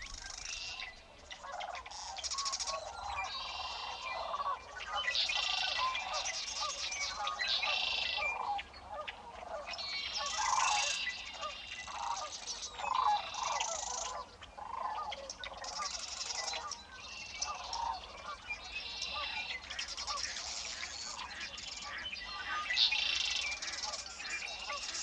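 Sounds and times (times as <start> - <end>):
buzzy bird trills: 0.0 - 1.0
birds honking: 0.0 - 1.2.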